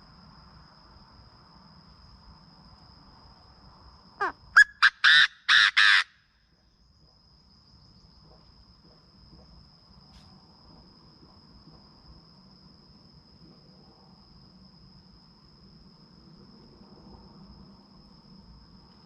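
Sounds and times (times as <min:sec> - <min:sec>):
crickets chirping: 0:00.0 - 0:19.0
high insect whine: 0:00.0 - 0:19.0
bird call with harsh notes: 0:04.6 - 0:06.1.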